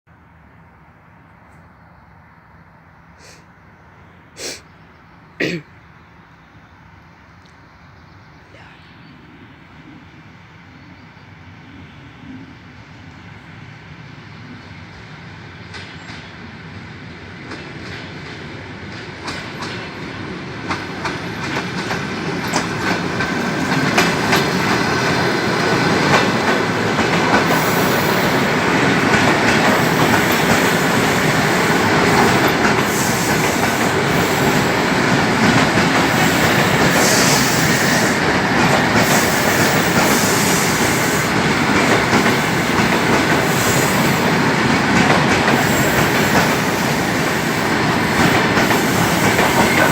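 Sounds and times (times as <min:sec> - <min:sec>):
electric train passing: 0:00.1 - 0:49.9
wheels clicking over rail joints: 0:20.6 - 0:49.9.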